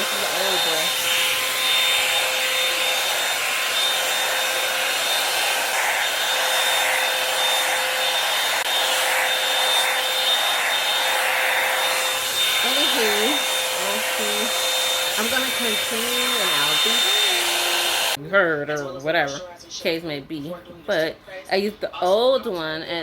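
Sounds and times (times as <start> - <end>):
hot air brush dryer running: 0.0 - 18.2.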